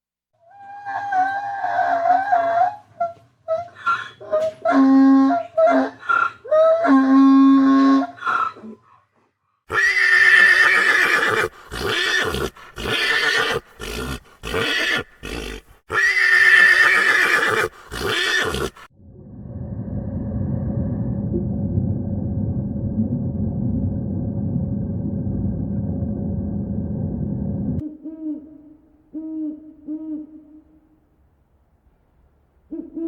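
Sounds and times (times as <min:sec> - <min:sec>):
donkey braying: 0:00.5 - 0:08.9, 0:09.7 - 0:18.9.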